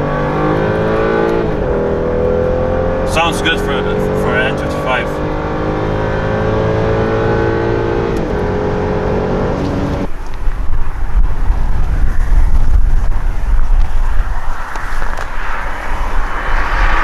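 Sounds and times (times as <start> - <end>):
car engine accelerating hard: 0.0 - 10.1.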